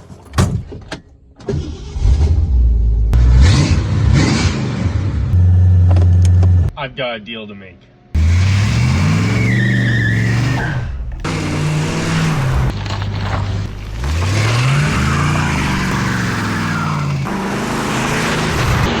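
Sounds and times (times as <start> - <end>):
car engine revving: 1.7 - 6.7, 8.2 - 19.0.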